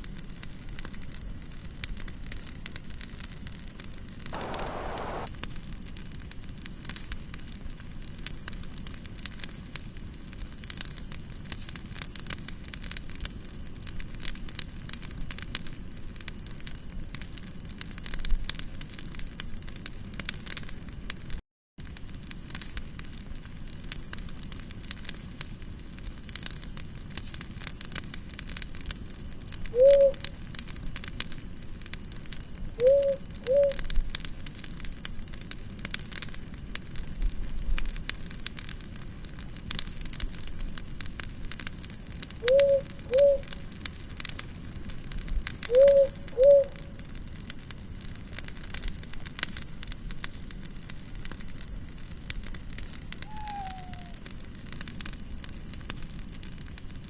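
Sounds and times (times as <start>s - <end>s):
campfire crackling and popping: 0.0s - 57.0s
short low calls: 4.4s - 5.3s
cricket chirping: 24.8s - 25.8s, 38.4s - 40.0s.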